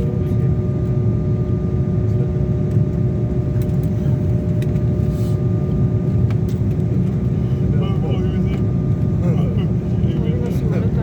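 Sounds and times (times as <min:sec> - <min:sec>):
constant hum: 0:00.0 - 0:11.0.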